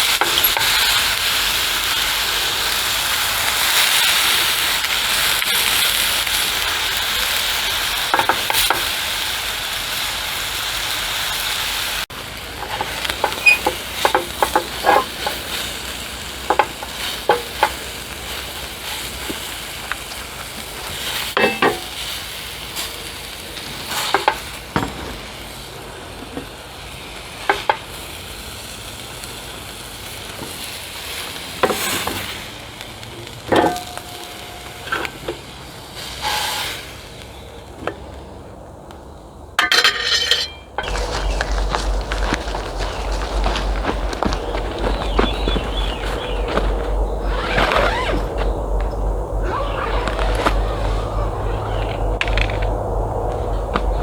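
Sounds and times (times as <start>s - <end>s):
steak sizzling: 0.0s - 37.4s
utensil knocking and scraping pan: 12.6s - 15.6s, 16.4s - 17.9s, 21.4s - 22.0s, 33.5s - 35.4s.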